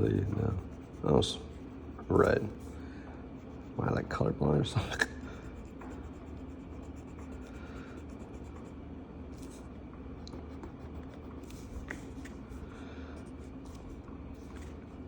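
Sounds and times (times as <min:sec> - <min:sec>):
marker rubbing on paper: 0:00.0 - 0:02.7
steady low hum: 0:00.0 - 0:15.0.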